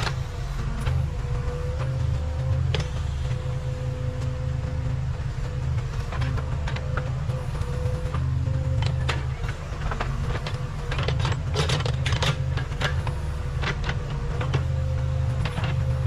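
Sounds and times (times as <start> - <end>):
diesel engine running: 0.0 - 16.0
faint steady whine: 0.0 - 16.0
metallic clanks and rattles: 5.7 - 16.0.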